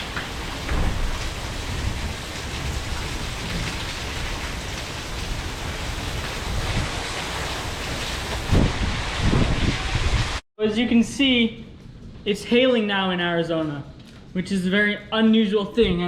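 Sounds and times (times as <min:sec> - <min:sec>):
heavy rain and hail: 0:00.0 - 0:10.4
low thump: 0:00.7 - 0:01.2.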